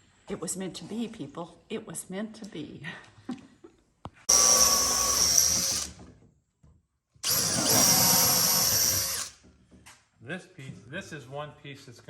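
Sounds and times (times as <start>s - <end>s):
electric drill boring into wood: 4.3s - 6.0s, 7.2s - 9.4s.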